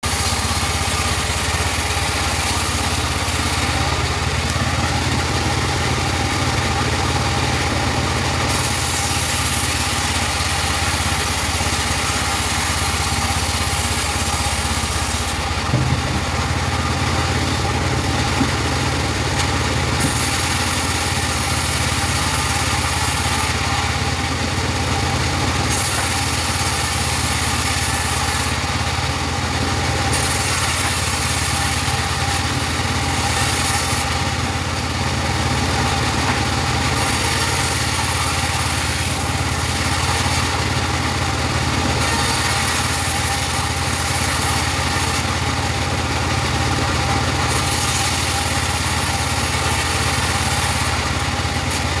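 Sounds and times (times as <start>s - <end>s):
bandsaw hissing: 0.0s - 6.0s, 19.9s - 24.0s, 25.5s - 28.9s, 30.0s - 34.5s, 36.5s - 45.6s, 46.2s - 52.0s
engine humming: 0.0s - 25.7s.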